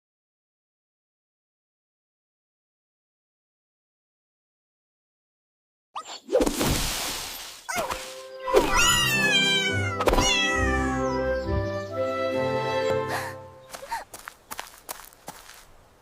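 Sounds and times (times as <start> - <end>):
music with sustained notes: 8.0 - 13.8
cartoon cat meowing: 8.6 - 11.1.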